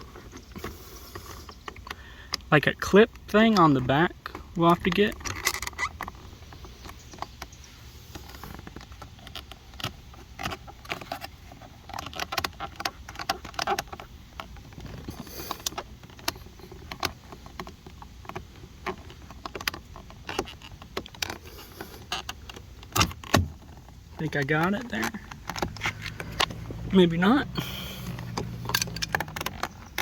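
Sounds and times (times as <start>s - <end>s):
plastic trim clicks and scrapes: 8.1s - 30.0s.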